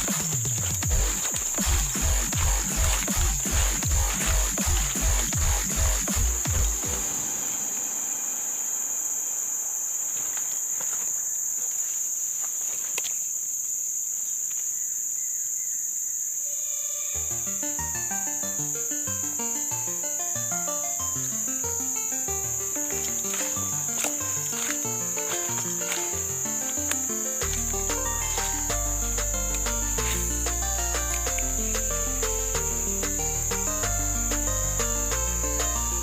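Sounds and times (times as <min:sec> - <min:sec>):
insects droning: 0:00.0 - 0:36.0
background music low melody: 0:17.2 - 0:36.0.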